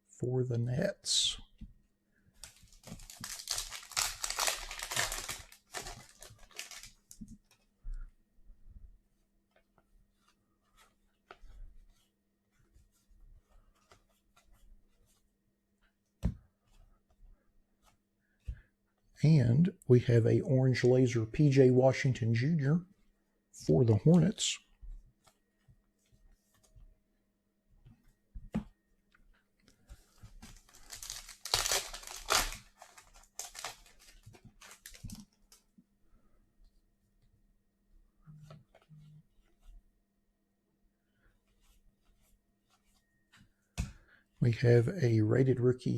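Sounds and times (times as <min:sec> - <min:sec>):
foil wrapper tearing and crinkling: 0:02.4 - 0:07.0, 0:30.6 - 0:35.2
cards rustling and clicking: 0:02.4 - 0:07.7, 0:29.6 - 0:35.7.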